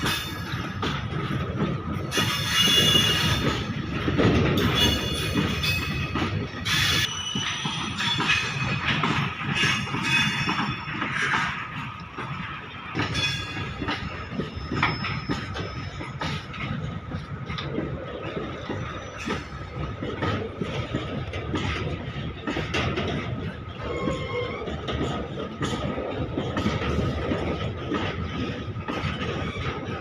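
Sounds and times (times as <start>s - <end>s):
train wagons rumbling: 0.0s - 30.0s
wheels clicking over rail joints: 0.0s - 30.0s
wheel squeal: 4.6s - 9.0s, 23.8s - 24.8s.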